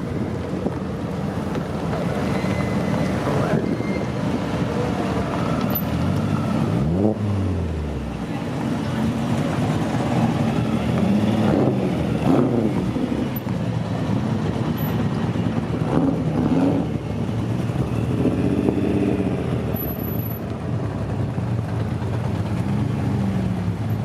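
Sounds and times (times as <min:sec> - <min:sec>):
racing car engine revving: 0:05.4 - 0:08.1, 0:09.5 - 0:13.2.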